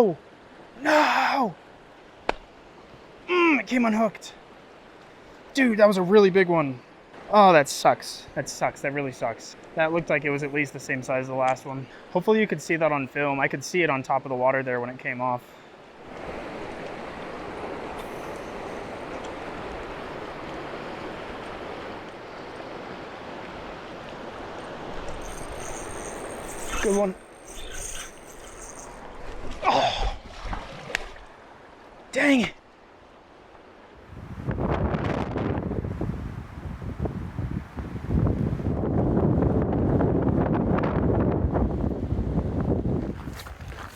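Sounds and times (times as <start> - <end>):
river water rushing: 16.0 - 29.0
clicks and scrapes: 24.6 - 29.1
wind buffeting microphone: 34.0 - 43.9.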